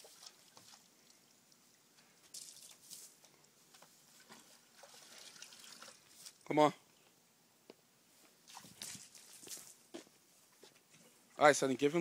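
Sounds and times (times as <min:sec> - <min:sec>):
faint water splash: 0:08.4 - 0:09.8.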